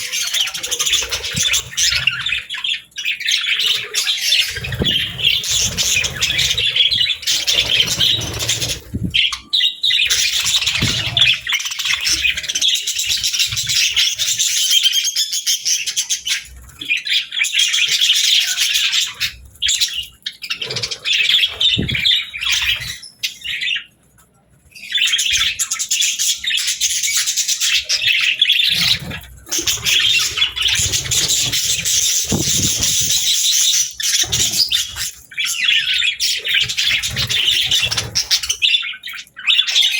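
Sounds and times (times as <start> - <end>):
budgerigars chattering: 0.0 - 23.9, 24.8 - 39.9
low thumps: 21.7 - 22.1.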